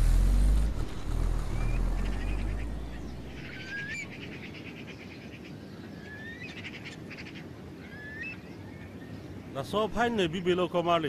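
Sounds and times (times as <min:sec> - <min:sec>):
low rumble: 0:00.0 - 0:04.1
birds whistling and trilling: 0:01.4 - 0:09.5.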